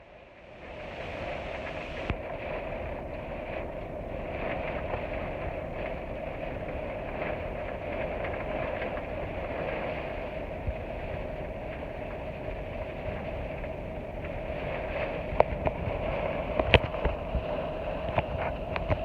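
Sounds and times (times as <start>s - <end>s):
low rumble: 0.0s - 19.0s
steady rain: 0.0s - 19.0s
raindrops ticking: 1.0s - 19.0s.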